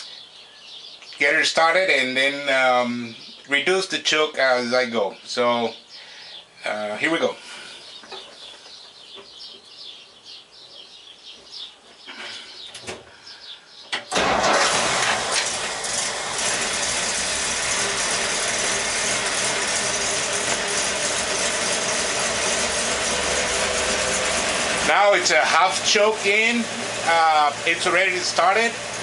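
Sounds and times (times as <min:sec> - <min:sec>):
truck engine starting and running: 0:14.0 - 0:29.0.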